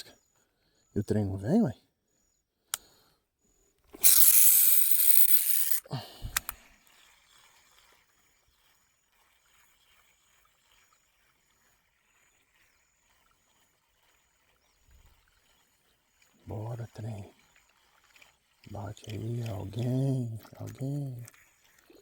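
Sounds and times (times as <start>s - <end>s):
fishing reel spool whirring: 3.9s - 22.0s
fishing reel clicks: 4.0s - 6.6s.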